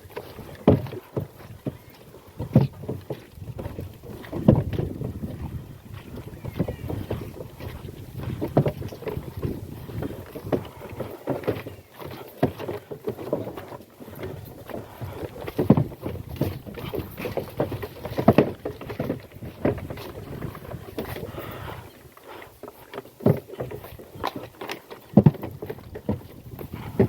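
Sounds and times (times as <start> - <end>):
cart rattling over rough ground: 0.0 - 27.0.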